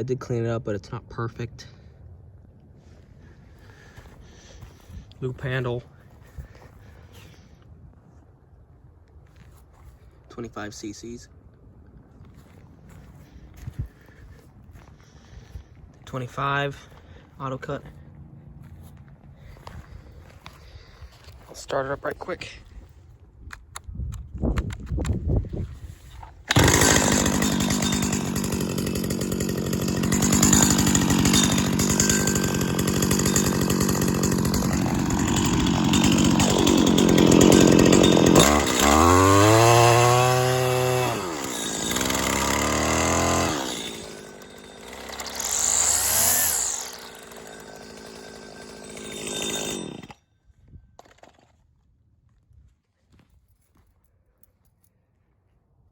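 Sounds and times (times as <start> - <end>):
pull cord start: 26.5 - 50.2
string trimmer engine revving: 26.5 - 50.2.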